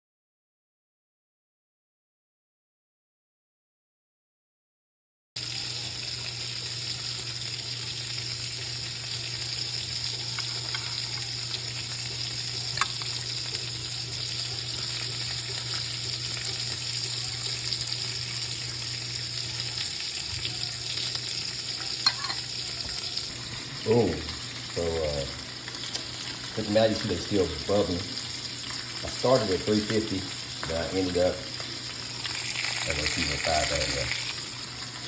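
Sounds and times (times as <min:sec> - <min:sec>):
food sizzling in a pan: 0:05.4 - 0:35.0.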